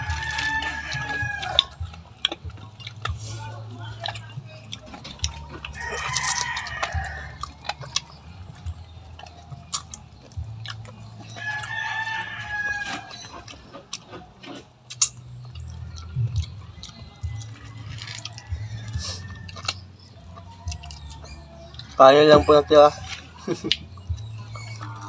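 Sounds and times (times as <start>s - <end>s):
rooster crowing: 0.0s - 1.8s, 5.2s - 14.6s, 16.8s - 23.6s.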